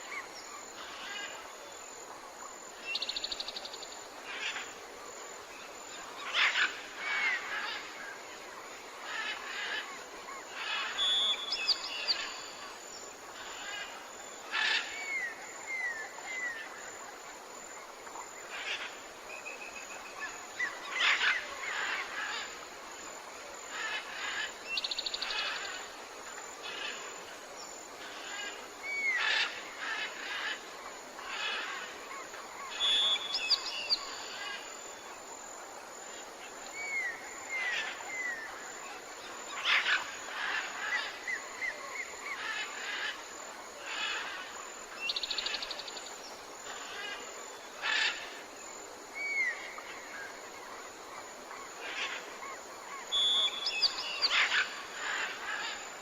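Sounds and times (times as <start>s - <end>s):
forest background: 0.0s - 56.0s.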